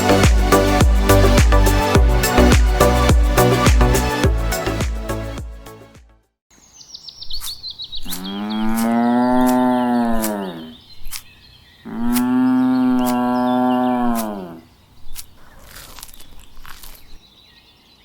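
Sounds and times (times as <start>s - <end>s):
bird chirping: 6.5s - 18.0s
sharp ticks: 7.4s - 10.4s
cow mooing: 8.1s - 10.7s, 11.8s - 14.7s.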